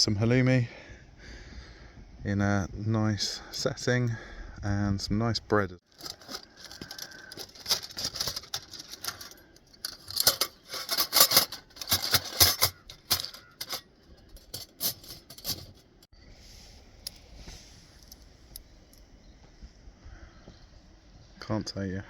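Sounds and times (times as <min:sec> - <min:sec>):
camp cooking gear clattering: 0:05.8 - 0:16.1.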